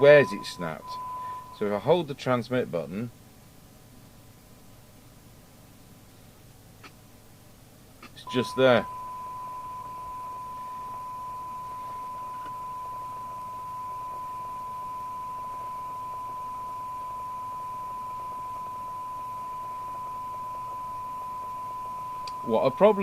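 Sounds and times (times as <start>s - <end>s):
steady test tone: 0.0s - 1.9s, 8.2s - 23.0s.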